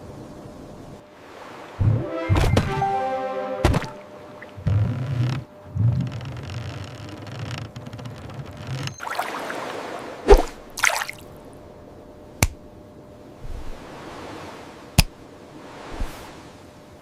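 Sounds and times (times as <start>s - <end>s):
water dripping and splashing: 9.0s - 11.3s.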